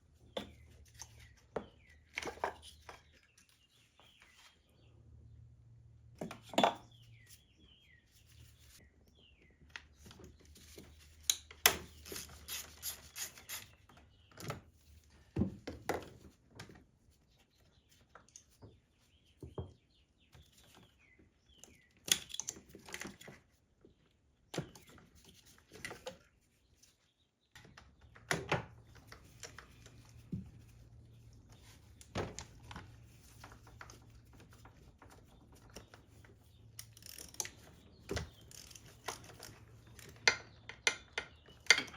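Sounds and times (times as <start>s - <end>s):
birds chirping: 6.6s - 11.1s
tools clicking and clinking: 38.4s - 41.9s.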